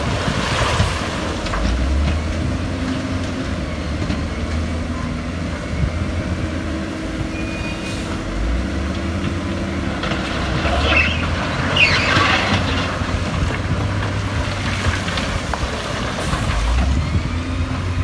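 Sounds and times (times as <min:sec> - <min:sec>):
diesel machinery engine rumble: 0:00.0 - 0:18.0
high squeal: 0:07.3 - 0:08.1, 0:10.8 - 0:12.6.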